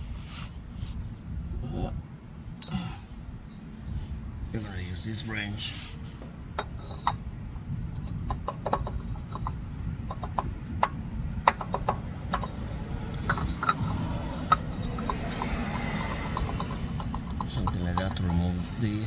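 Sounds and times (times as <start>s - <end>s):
steady low rumble: 0.0s - 19.0s
hand tools clinking: 11.5s - 19.0s.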